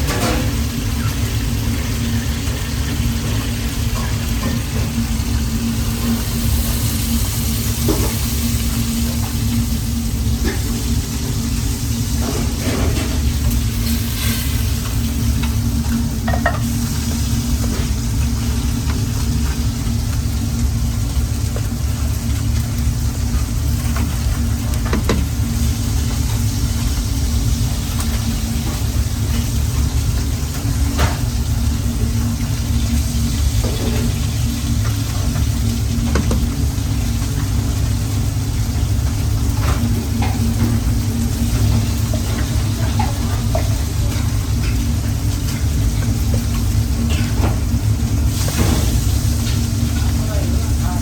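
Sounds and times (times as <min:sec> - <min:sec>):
low rumble and hum: 0:00.0 - 0:51.0
food sizzling in a pan: 0:00.5 - 0:24.6.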